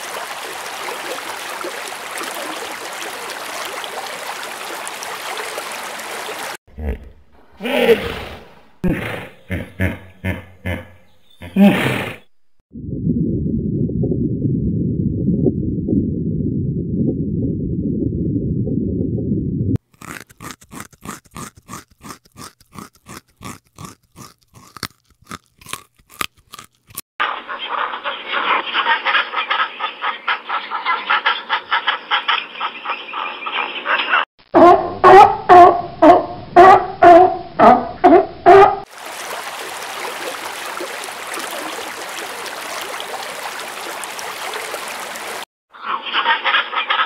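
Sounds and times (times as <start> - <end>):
underwater rushing water: 0.0 - 6.6, 38.9 - 45.5.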